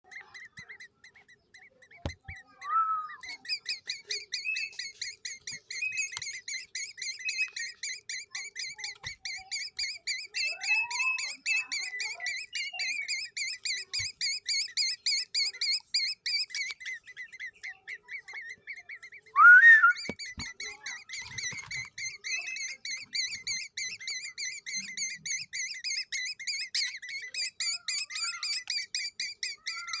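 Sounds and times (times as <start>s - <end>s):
bird chick chirping: 0.0s - 30.0s
loud sweeping bird call: 17.0s - 30.0s.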